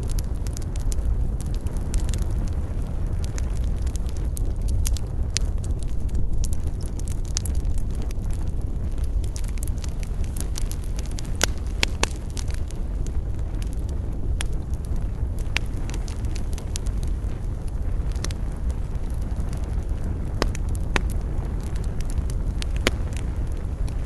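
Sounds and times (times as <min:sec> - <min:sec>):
campfire crackling and popping: 0:00.0 - 0:24.0
low rumble of fire: 0:00.0 - 0:24.0.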